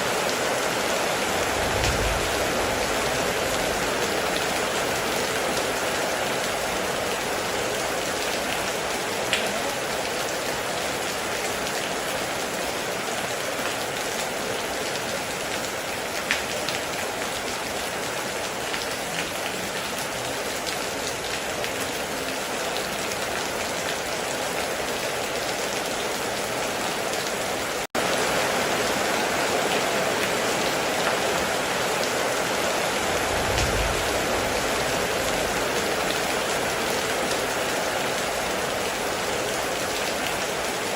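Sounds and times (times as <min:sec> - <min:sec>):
heavy rain falling: 0:00.0 - 0:40.9
short low rumble: 0:01.4 - 0:04.0, 0:33.1 - 0:35.6.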